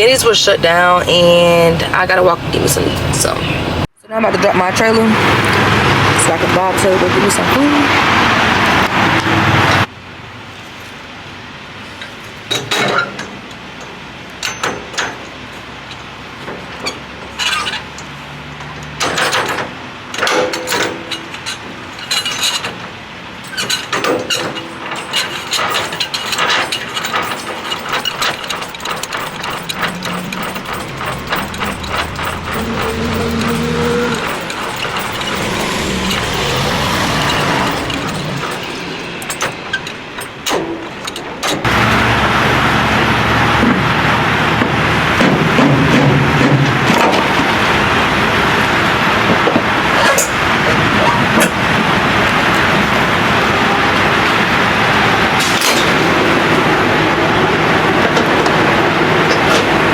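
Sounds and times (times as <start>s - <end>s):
truck engine running: 23.2s - 49.2s
metallic clicks and ratcheting: 23.4s - 41.6s.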